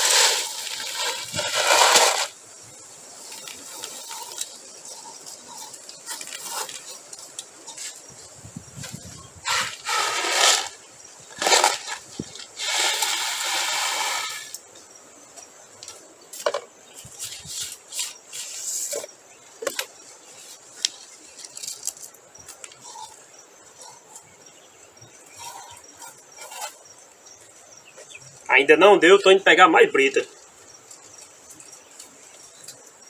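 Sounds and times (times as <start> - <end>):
crushed stone pouring: 0.0 - 2.4, 9.4 - 14.6.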